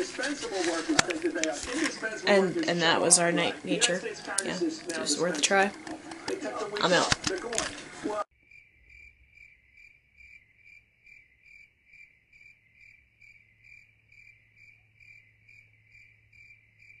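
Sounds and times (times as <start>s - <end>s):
cricket chirping: 8.4s - 17.0s.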